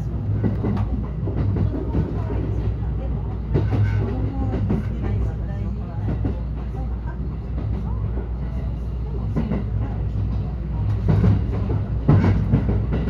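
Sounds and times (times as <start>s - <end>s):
train clattering: 0.0s - 13.0s
train wheels rumbling: 0.0s - 13.0s.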